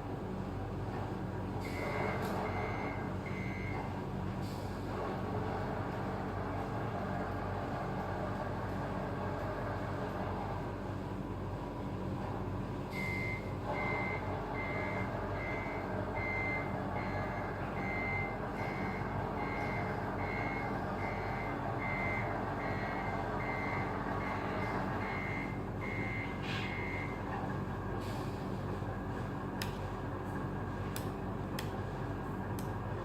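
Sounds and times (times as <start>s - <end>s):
reversing alarm beeping: 1.6s - 3.9s, 12.9s - 27.2s
steady engine-like drone: 4.4s - 33.0s.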